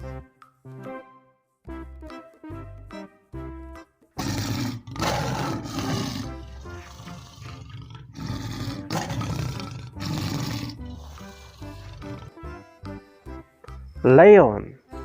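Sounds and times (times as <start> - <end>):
tiger roaring and growling: 4.2 - 12.6.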